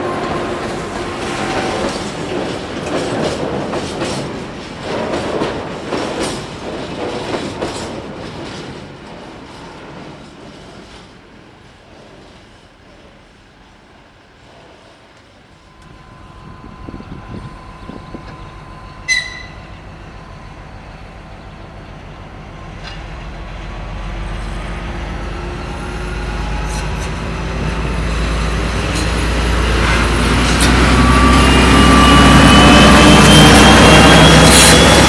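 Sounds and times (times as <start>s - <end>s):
diesel locomotive engine: 0.0s - 35.0s
rising whine: 15.6s - 21.0s, 29.5s - 35.0s.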